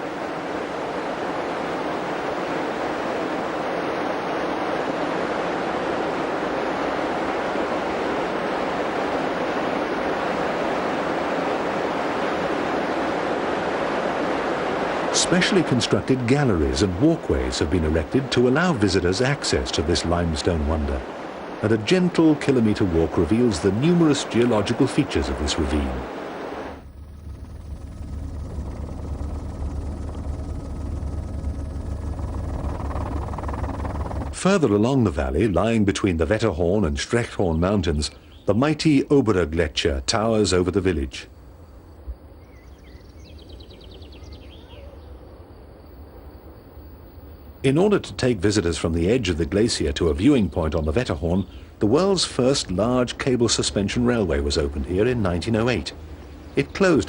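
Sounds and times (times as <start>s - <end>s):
river rushing through rock gorge: 0.0s - 26.7s
low rumble with rapid flutter: 0.0s - 37.7s, 45.8s - 57.0s.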